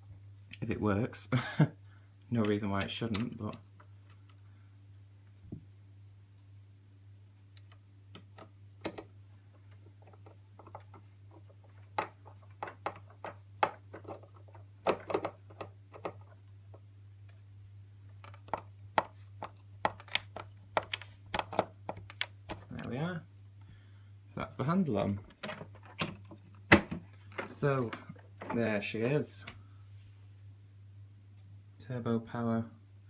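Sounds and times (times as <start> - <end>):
screwdriver clicking on plastic: 18.2 - 22.6.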